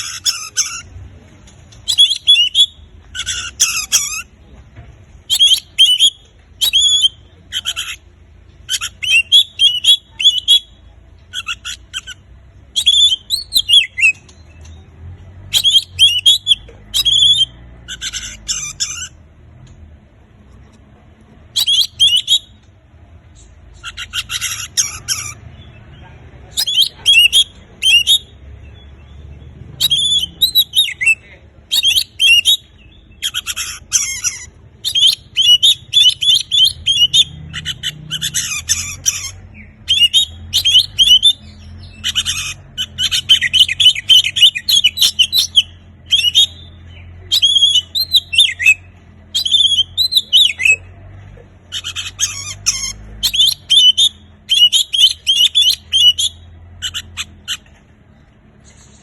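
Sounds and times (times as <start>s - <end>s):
bird singing whistles: 1.8s - 4.3s, 5.3s - 8.0s, 8.7s - 14.8s, 15.5s - 18.2s, 21.5s - 22.6s, 26.6s - 28.4s, 29.8s - 33.6s, 34.8s - 50.9s, 53.2s - 57.2s.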